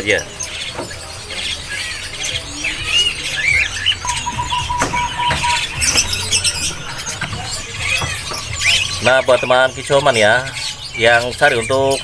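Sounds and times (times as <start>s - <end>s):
songbirds chirping and squeaking: 0.0s - 12.0s
held high bird note: 4.0s - 7.5s.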